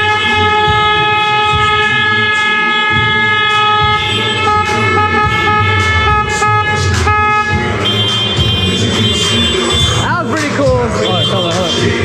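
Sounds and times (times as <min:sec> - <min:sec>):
multi-tone horn honking: 0:00.0 - 0:12.0.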